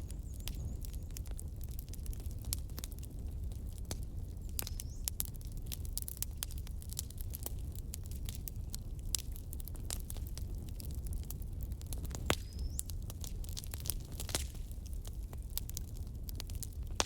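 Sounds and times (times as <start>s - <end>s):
wood fire crackling: 0.0s - 17.0s
sharp pops and snaps: 12.0s - 14.7s.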